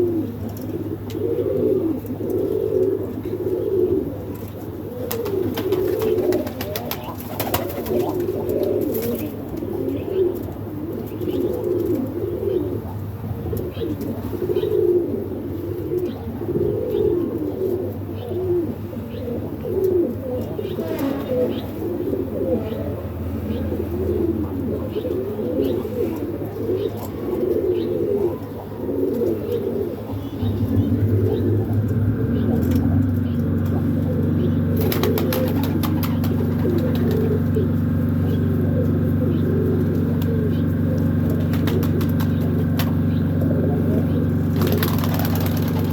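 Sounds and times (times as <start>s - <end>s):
pigeons cooing: 0.0s - 45.9s.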